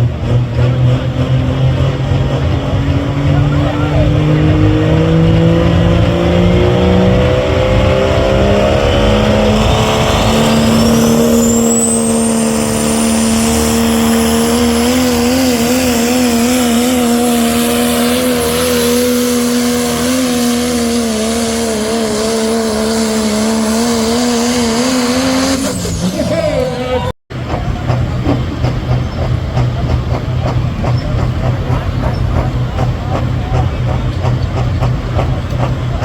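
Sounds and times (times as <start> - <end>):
diesel engine at full throttle: 0.0 - 36.0
high turbo whine: 0.0 - 36.0.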